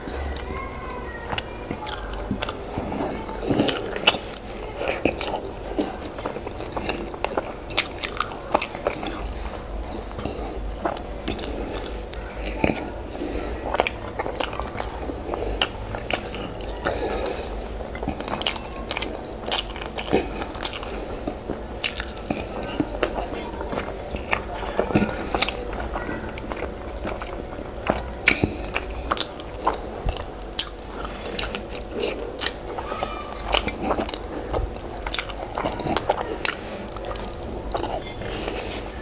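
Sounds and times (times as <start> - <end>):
person chewing wetly: 0.0 - 39.0.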